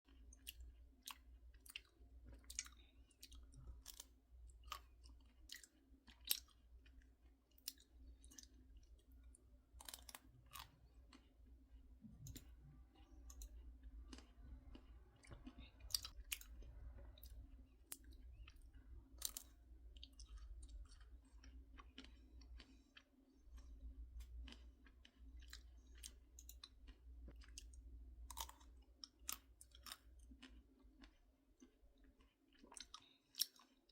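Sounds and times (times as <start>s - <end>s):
faint low hum: 0.1s - 33.9s
person chewing crunchy snacks: 0.1s - 33.9s.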